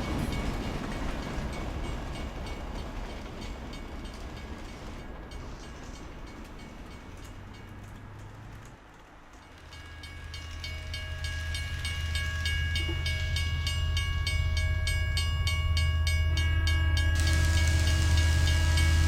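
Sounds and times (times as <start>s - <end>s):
clicks at rail joints: 0.0s - 10.8s
model train motor hum and whine: 17.0s - 19.0s.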